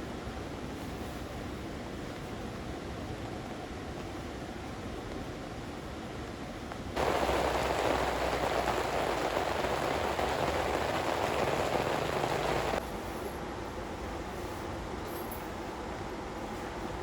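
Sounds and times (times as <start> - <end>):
heavy rain falling: 7.0 - 12.8.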